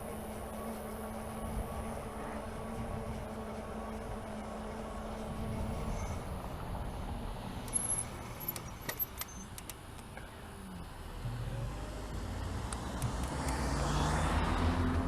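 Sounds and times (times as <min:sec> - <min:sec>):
bicycle rolling on road: 0:00.0 - 0:15.0
bike clicks and rattles: 0:07.6 - 0:10.1.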